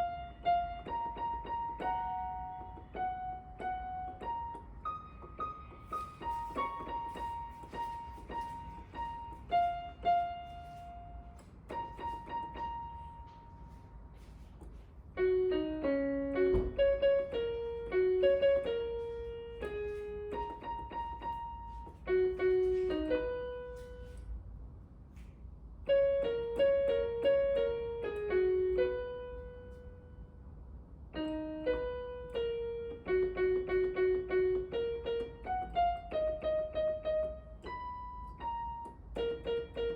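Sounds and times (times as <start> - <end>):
piano melody: 0.0 - 24.9, 25.6 - 39.9.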